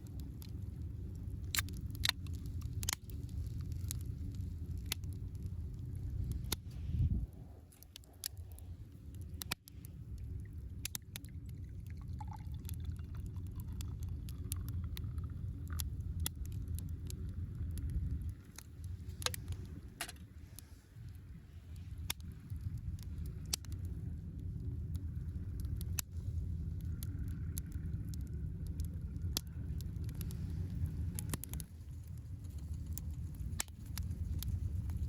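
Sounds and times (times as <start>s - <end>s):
campfire crackling: 0.0s - 35.0s
steady low rumble: 0.0s - 35.0s
sharp pops of fire: 1.2s - 5.2s.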